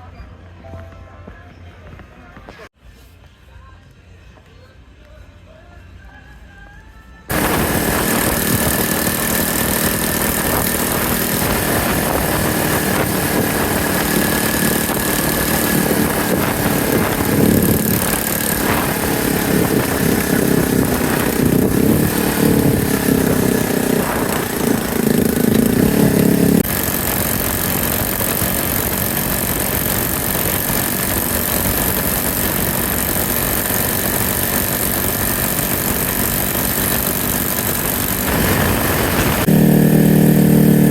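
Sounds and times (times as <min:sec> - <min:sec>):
rush of noise: 0:07.3 - 0:39.7
motorcycle engine running: 0:07.3 - 0:40.9.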